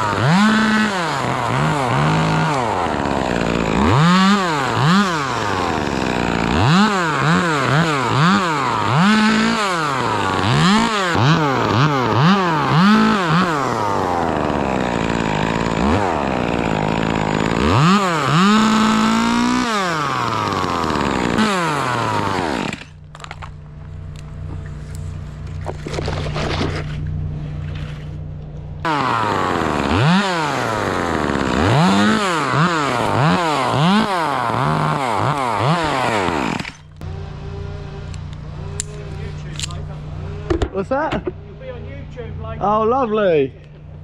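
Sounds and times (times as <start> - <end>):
chainsaw revving and idling: 0.0 - 23.5, 28.8 - 40.7.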